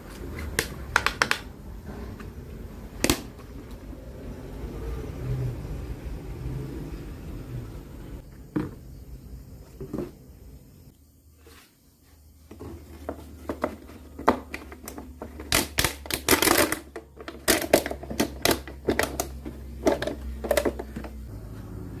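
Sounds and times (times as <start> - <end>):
sharp clicks and knocks: 0.4 - 1.6.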